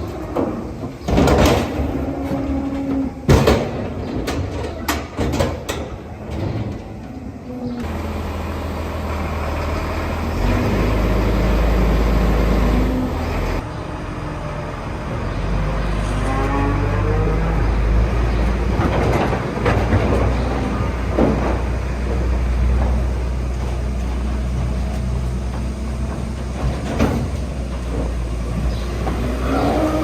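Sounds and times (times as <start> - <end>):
knocks and rattles: 0.0 - 7.2, 18.2 - 29.4
low machine drone: 6.0 - 30.0.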